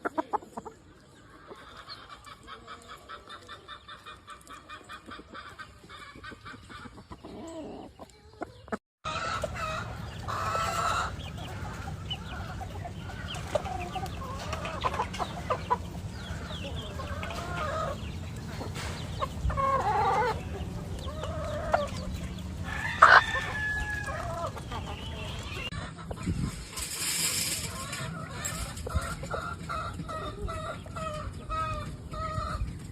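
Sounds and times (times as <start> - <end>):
chickens clucking: 0.0 - 32.9
rooster crowing: 22.6 - 24.5.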